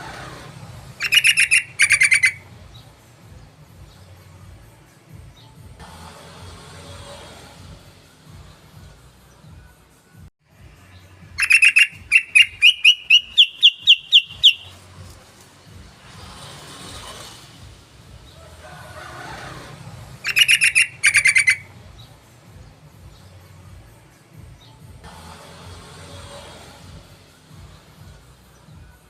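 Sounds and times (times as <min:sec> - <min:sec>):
bulbul song: 0:00.9 - 0:05.8, 0:10.6 - 0:15.7, 0:20.2 - 0:25.0.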